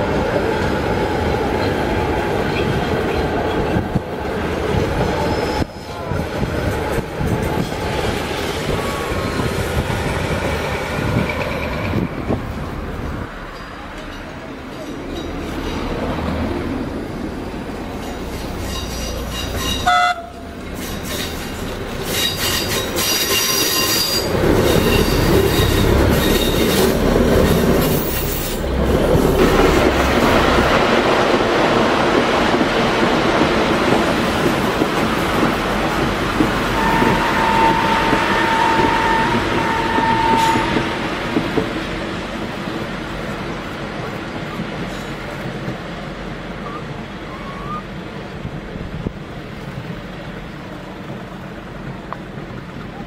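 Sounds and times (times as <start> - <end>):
diesel locomotive running: 0.0 - 53.0
train wheels squealing: 5.2 - 6.0, 18.0 - 20.0, 20.8 - 28.6, 36.7 - 40.9, 46.6 - 47.9
train horn blasts: 19.6 - 20.5, 36.7 - 41.0.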